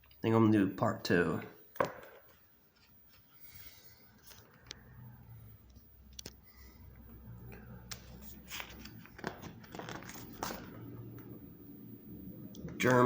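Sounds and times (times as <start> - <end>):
low room hum: 0.0 - 13.0
book pages turning: 7.8 - 11.3
paper crackling and rustling: 7.9 - 10.9.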